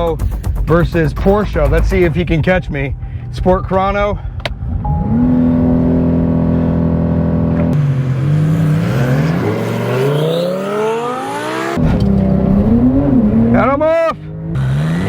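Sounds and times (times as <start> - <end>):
sports car engine revving: 4.5 - 15.0.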